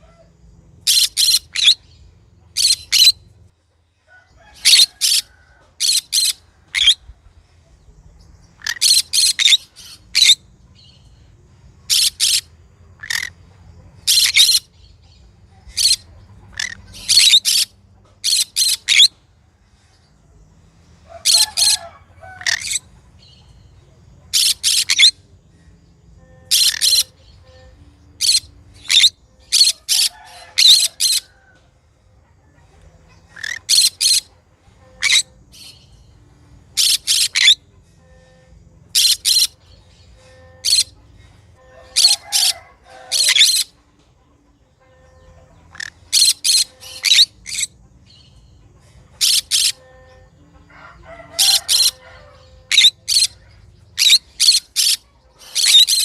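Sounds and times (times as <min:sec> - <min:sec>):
parrot shrill chirps: 0:00.8 - 0:01.9, 0:02.6 - 0:03.2, 0:04.5 - 0:07.0, 0:08.6 - 0:10.4, 0:11.9 - 0:13.3, 0:14.0 - 0:14.7, 0:15.7 - 0:19.1, 0:21.1 - 0:22.9, 0:24.3 - 0:25.2, 0:26.5 - 0:27.4, 0:28.2 - 0:31.4, 0:33.3 - 0:34.3, 0:35.0 - 0:35.8, 0:36.8 - 0:37.6, 0:38.9 - 0:39.6, 0:40.6 - 0:40.9, 0:41.8 - 0:43.7, 0:45.7 - 0:47.7, 0:49.2 - 0:49.8, 0:51.1 - 0:53.4, 0:54.0 - 0:56.0.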